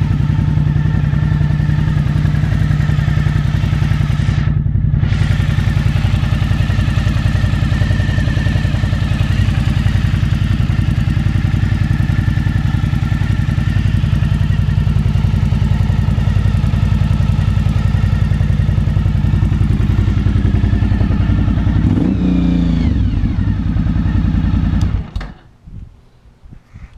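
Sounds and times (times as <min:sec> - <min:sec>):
motorcycle engine running: 0:00.0 - 0:25.3.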